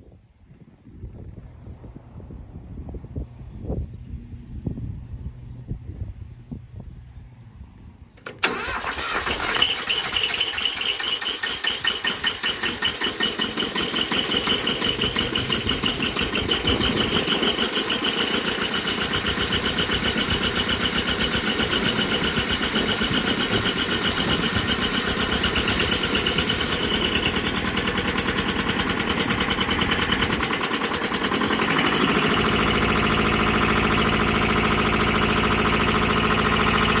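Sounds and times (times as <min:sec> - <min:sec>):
diesel engine chugging: 0:08.2 - 0:37.0.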